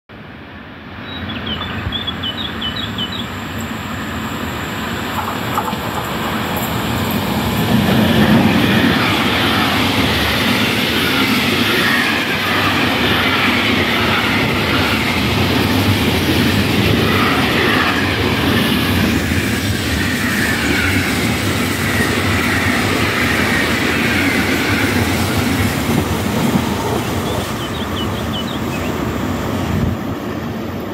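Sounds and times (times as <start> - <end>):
freight train passing: 0.1 - 30.9.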